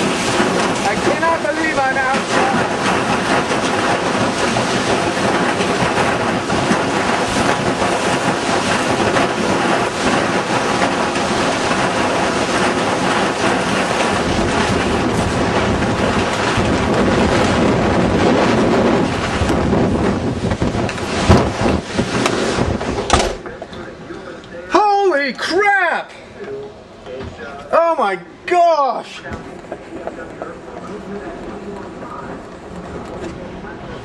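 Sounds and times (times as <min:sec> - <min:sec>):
storm wind blowing: 0:00.0 - 0:24.7
wind buffeting microphone: 0:00.0 - 0:24.7
rain: 0:00.0 - 0:25.9.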